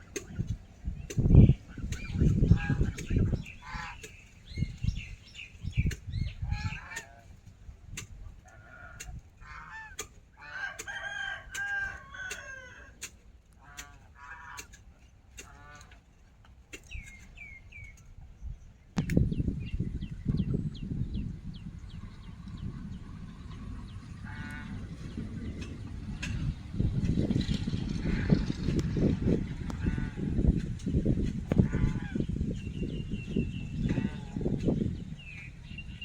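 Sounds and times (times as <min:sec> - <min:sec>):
chickens clucking: 0:00.0 - 0:07.3, 0:07.9 - 0:18.2, 0:19.1 - 0:35.6
rooster crowing: 0:10.5 - 0:13.0.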